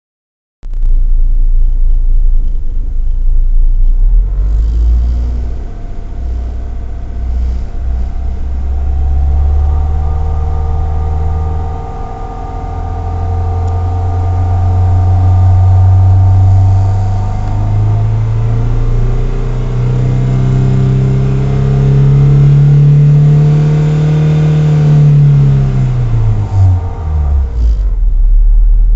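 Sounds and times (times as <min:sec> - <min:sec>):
car engine revving: 0:00.7 - 0:28.9
steady high tone: 0:05.4 - 0:19.7.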